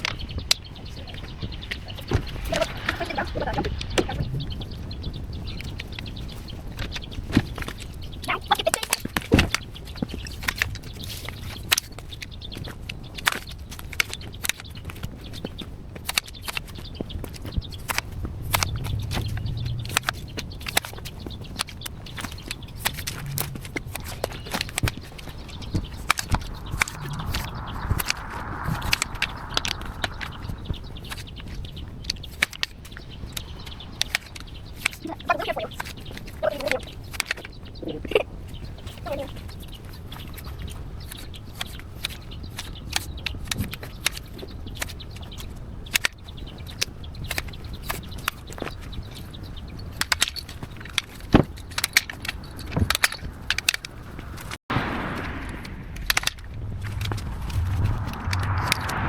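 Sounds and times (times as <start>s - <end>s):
rushing noise with low hum: 0.0s - 8.3s, 16.4s - 36.4s, 52.5s - 59.0s
branches snipped and snapped: 8.8s - 30.3s, 40.1s - 46.2s
sharp clicks and snaps: 13.2s - 37.5s, 55.6s - 59.0s.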